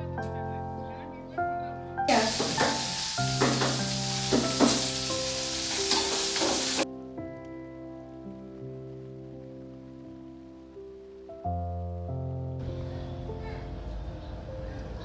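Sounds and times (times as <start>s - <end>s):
food sizzling in hot oil: 2.1s - 6.8s.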